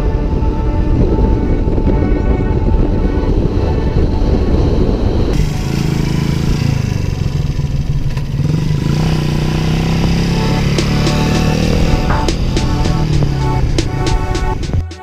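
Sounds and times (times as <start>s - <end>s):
low rumble: 0.0s - 8.4s
wind on microphone: 0.0s - 15.0s
motorcycle engine running: 3.6s - 14.9s.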